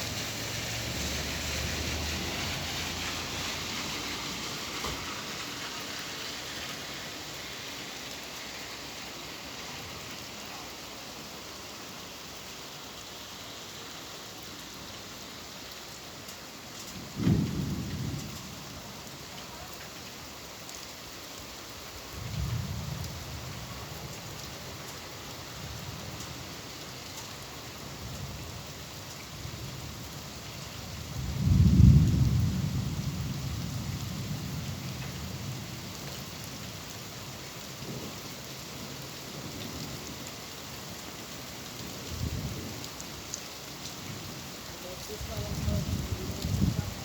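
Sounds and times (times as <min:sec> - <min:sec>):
steady rain: 0:00.0 - 0:47.0
rolling thunder: 0:17.0 - 0:18.8, 0:22.2 - 0:23.7, 0:31.1 - 0:35.8, 0:45.1 - 0:47.0.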